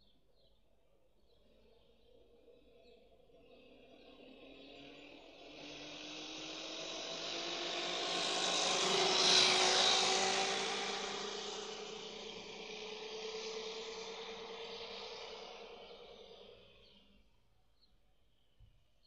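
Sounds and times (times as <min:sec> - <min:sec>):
electric motorbike whine passing: 0:02.0 - 0:17.2.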